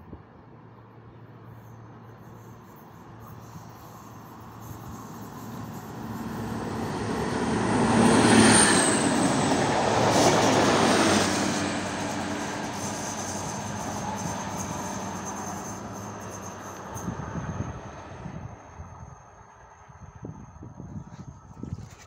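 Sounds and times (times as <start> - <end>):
high wheel squeal: 1.5 - 18.5
train wheels rumbling on rails: 2.6 - 18.7.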